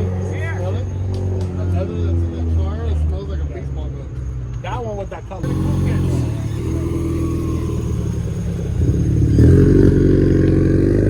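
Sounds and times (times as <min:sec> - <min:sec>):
car engine revving: 0:05.4 - 0:11.0.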